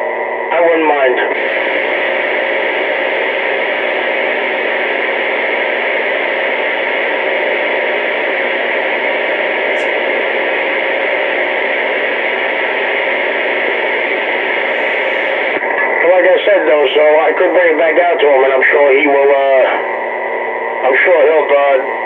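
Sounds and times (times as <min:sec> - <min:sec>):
faint hum: 0:00.0 - 0:22.0
radio static hiss: 0:00.1 - 0:22.0.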